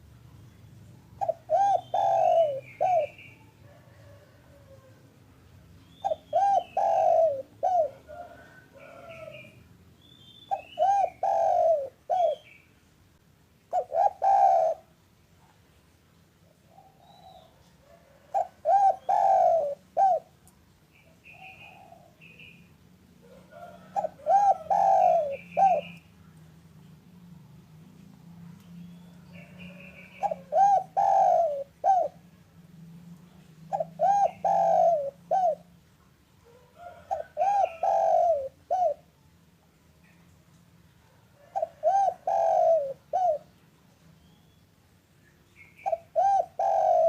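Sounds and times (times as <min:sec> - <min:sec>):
small birds chirping: 0:00.1 - 0:04.2, 0:05.5 - 0:13.0, 0:16.5 - 0:22.8, 0:23.7 - 0:27.6, 0:28.6 - 0:32.2, 0:41.7 - 0:47.0
dove cooing: 0:01.1 - 0:05.1, 0:05.9 - 0:09.6, 0:10.5 - 0:12.6, 0:13.7 - 0:15.0, 0:16.4 - 0:20.4, 0:21.2 - 0:22.6, 0:23.2 - 0:26.0, 0:28.8 - 0:32.5, 0:33.6 - 0:35.8, 0:36.4 - 0:39.2, 0:41.0 - 0:43.6, 0:45.6 - 0:47.0.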